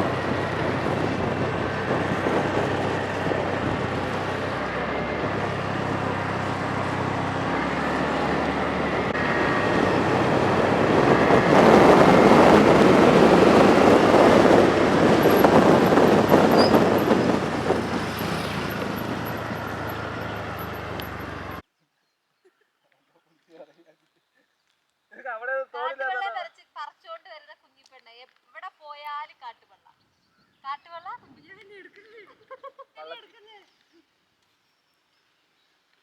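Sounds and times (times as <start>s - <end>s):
motorcycle engine drone: 0.0s - 21.6s
wind rush: 0.0s - 21.6s.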